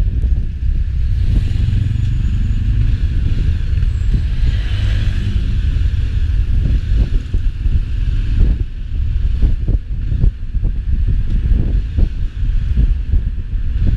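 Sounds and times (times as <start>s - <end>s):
wind on microphone: 0.0s - 13.9s
vehicle passing: 1.0s - 7.2s.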